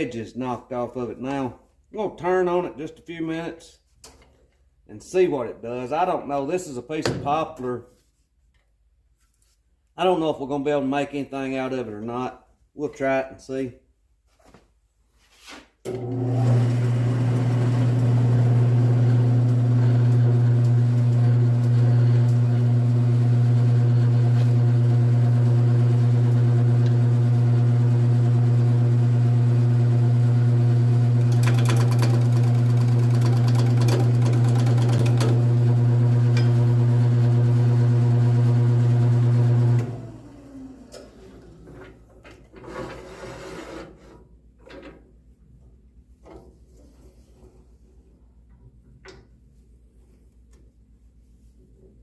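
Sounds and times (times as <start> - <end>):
lathe motor humming: 16.0 - 40.9.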